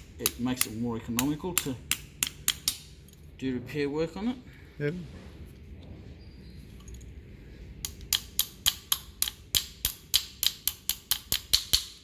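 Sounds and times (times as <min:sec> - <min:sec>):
hand tool clicking on metal: 0:00.0 - 0:02.8, 0:07.8 - 0:12.0.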